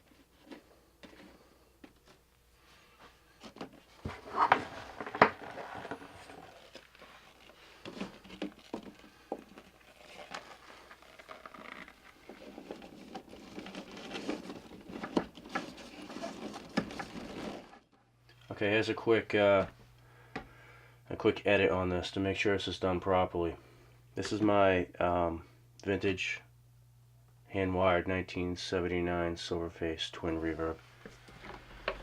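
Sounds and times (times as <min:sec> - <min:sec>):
hands handling parts: 0:03.0 - 0:17.8.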